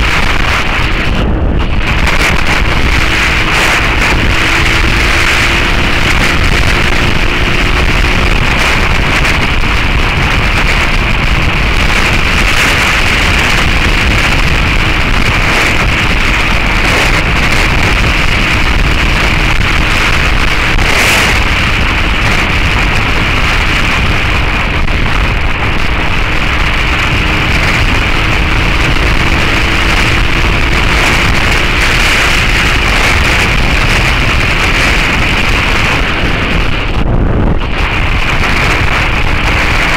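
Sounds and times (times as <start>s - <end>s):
faint motorcycle engine: 0.0s - 39.9s
wind rushing over microphone: 0.0s - 39.9s.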